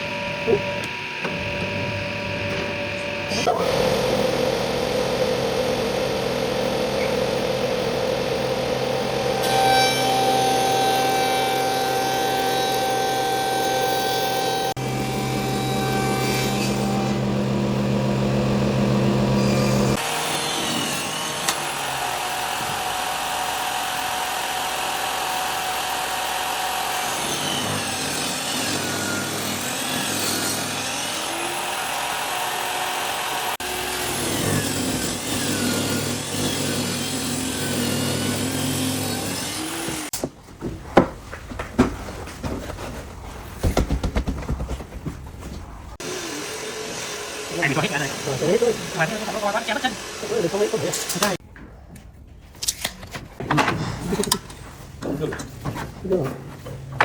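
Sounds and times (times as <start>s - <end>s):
power tool cutting wood: 0.0s - 40.1s, 46.0s - 51.4s.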